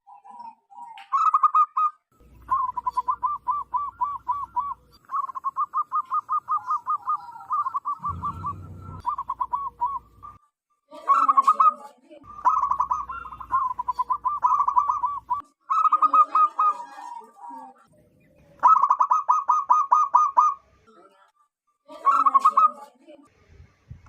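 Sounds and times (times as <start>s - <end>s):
doves cooing: 0.1s - 10.4s, 11.1s - 20.6s
brief low rumble: 8.0s - 9.2s.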